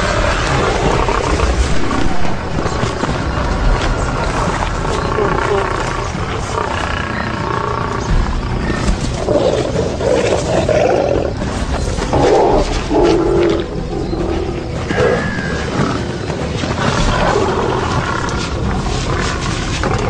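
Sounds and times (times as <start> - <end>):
background music: 0.0 - 20.0
lions growling and snarling: 0.0 - 20.0.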